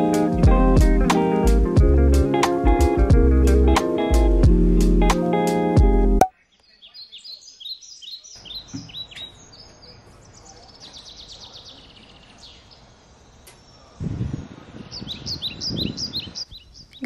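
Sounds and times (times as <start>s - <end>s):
faint outdoor background noise: 0.0s - 17.0s
small birds chirping: 6.2s - 17.0s.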